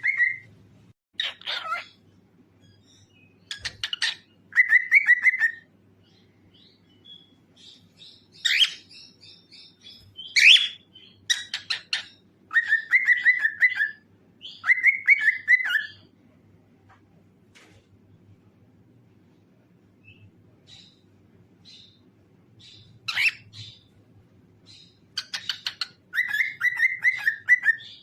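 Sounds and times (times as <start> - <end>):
cockatiel chirping and trilling: 0.0 - 0.5, 1.2 - 2.0, 2.6 - 16.1, 22.6 - 23.9, 24.7 - 28.0
cockatiel whistled calls: 0.0 - 0.5, 3.6 - 5.6, 8.4 - 16.0, 23.1 - 23.8, 25.2 - 28.0.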